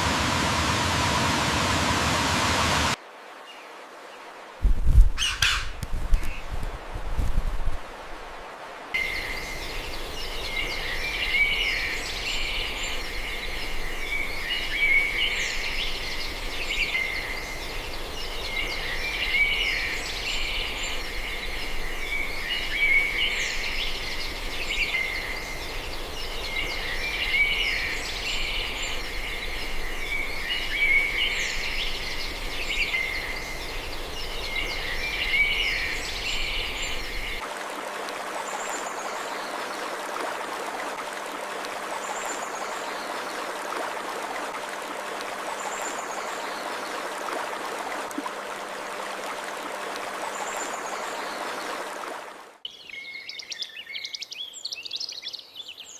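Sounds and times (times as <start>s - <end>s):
steady noise: 0.0s - 3.0s
outdoor background hiss: 0.0s - 55.9s
birds chirping and calling: 5.2s - 5.8s.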